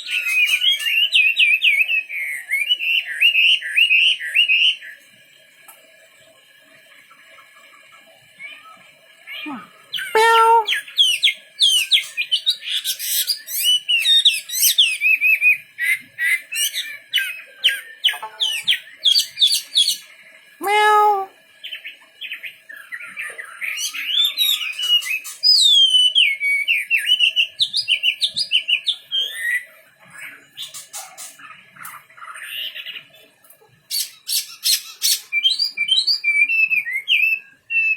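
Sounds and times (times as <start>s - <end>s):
bird whistling song: 10.0s - 20.0s, 23.7s - 29.6s, 33.9s - 37.9s.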